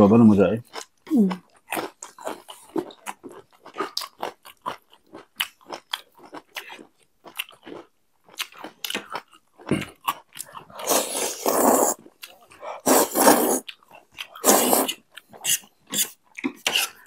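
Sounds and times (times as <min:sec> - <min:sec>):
slurping noodles: 0:10.7 - 0:13.7, 0:14.3 - 0:17.0.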